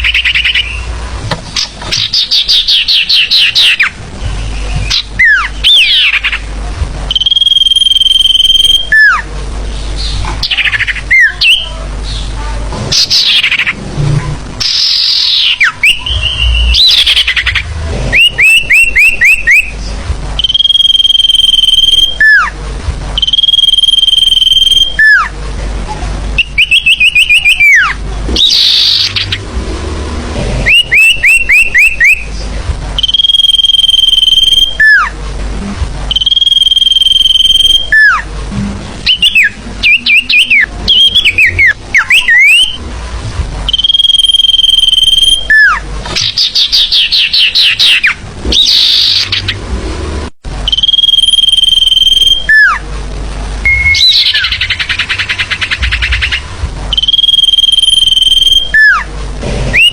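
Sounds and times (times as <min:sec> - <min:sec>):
bird whistles with downward slur: 0:43.7 - 0:49.5, 0:56.9 - 0:59.0.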